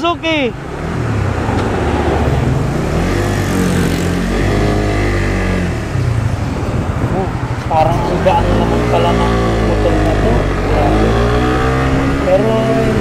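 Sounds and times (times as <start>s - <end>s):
motorcycle engine accelerating: 0.6s - 13.0s
wind rushing: 5.0s - 12.4s.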